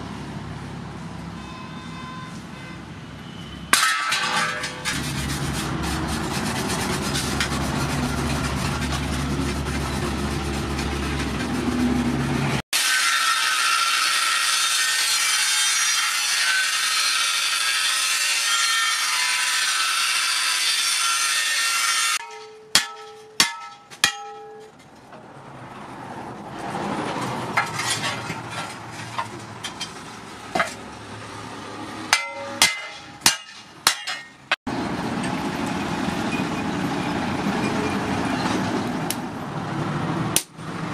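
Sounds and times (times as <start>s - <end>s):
ringing metallic clanks: 3.7s - 5.0s, 22.2s - 24.9s, 32.1s - 34.5s
brush scrubbing rust off steel: 3.8s - 12.6s
angle grinder cutting steel: 4.4s - 22.5s.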